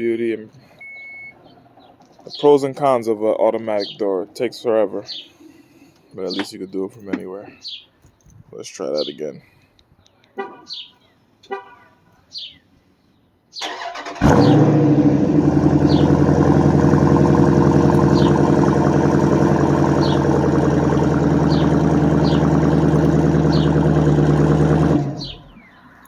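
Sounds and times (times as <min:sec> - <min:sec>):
engine starter cranking: 0:13.6 - 0:15.0
car engine revving and idling: 0:14.2 - 0:25.7.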